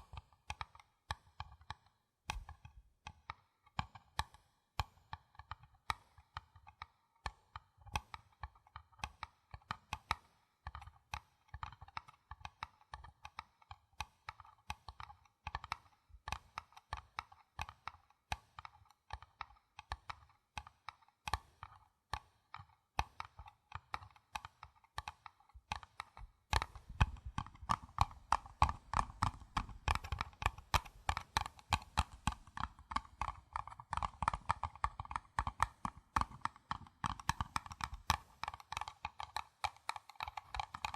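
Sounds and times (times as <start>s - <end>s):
paper cups being tapped: 26.2s - 40.9s.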